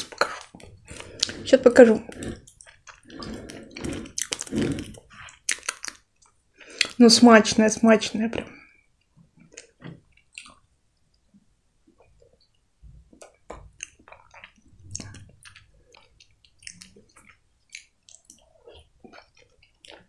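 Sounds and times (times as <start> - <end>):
wet chewing mouth sounds: 0.0 - 6.0, 13.1 - 20.0.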